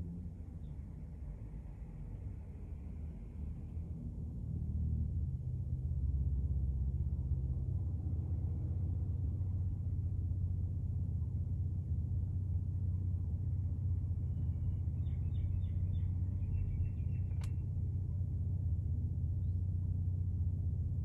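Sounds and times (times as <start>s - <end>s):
steady low hum: 0.0s - 21.0s
small bird chirping: 14.6s - 17.6s
sharp click: 17.3s - 17.6s.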